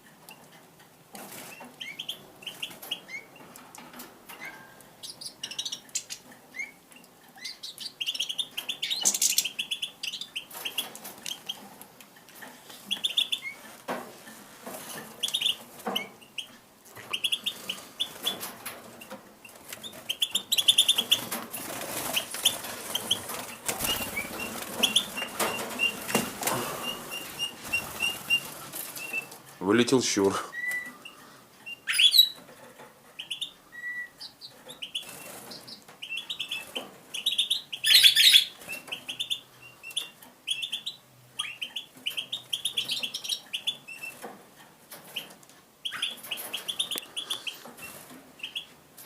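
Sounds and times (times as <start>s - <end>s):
birds chirping: 1.4s - 3.7s, 4.3s - 13.8s, 14.6s - 44.3s, 45.0s - 48.8s
wings fluttering: 17.0s - 29.5s.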